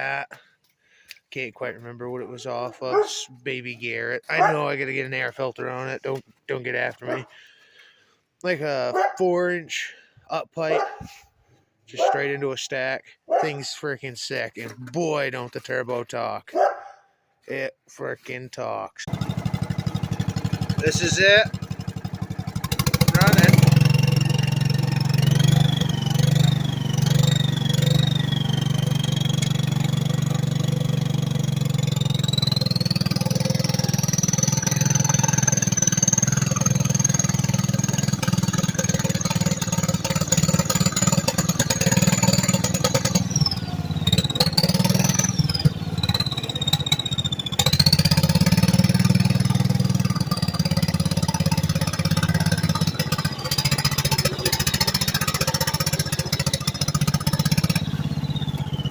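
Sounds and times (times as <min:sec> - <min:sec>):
single-cylinder mower engine running: 0:19.1 - 0:58.9.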